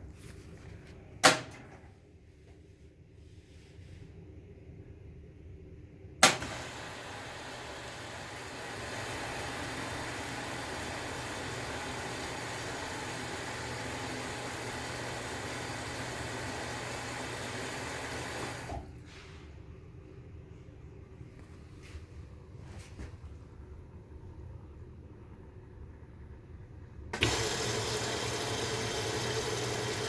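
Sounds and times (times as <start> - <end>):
washing machine switch click: 6.2 - 6.6
washing machine running: 6.2 - 19.2, 23.3 - 30.0.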